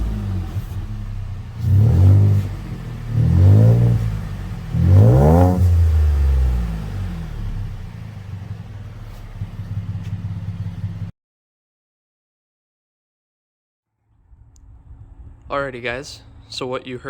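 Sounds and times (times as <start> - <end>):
truck engine revving and idling: 0.0 - 11.1.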